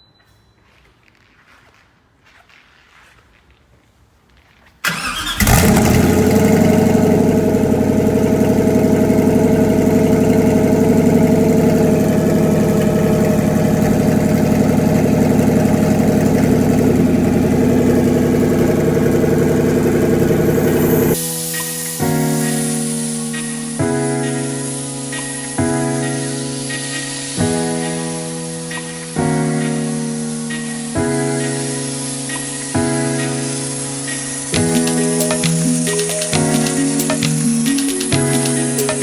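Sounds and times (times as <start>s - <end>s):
engine starter cranking: 4.8s - 21.2s, 34.6s - 39.0s
engine fast idle: 4.8s - 21.3s.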